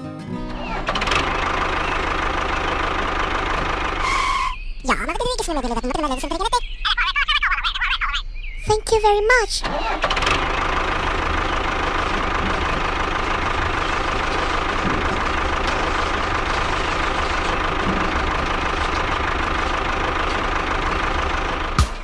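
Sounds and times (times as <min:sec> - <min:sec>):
engine idling: 0:00.4 - 0:22.0.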